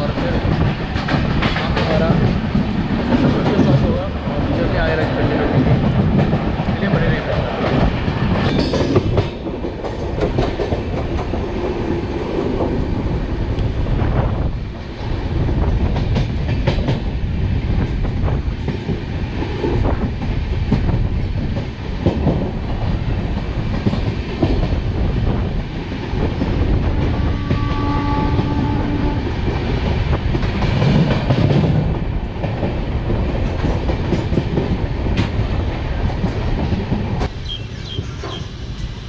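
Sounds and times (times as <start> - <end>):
train rumbling on the track: 0.0 - 39.0
horn-like tone: 27.2 - 29.2.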